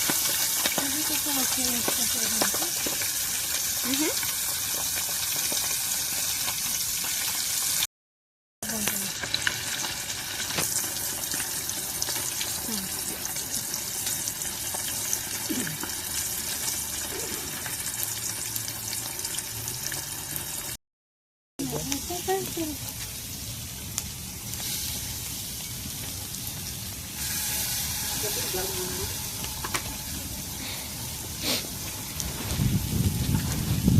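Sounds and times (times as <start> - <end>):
small crackles: 0.0 - 6.7, 8.7 - 13.5
food sizzling in a pan: 0.0 - 7.9, 8.6 - 20.8, 21.6 - 33.9.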